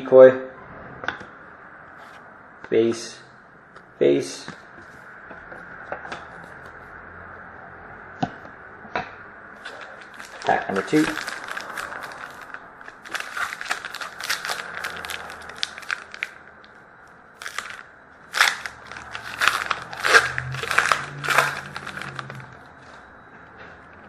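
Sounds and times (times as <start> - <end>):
wrapper tearing and crinkling: 9.6 - 16.6, 17.4 - 22.6.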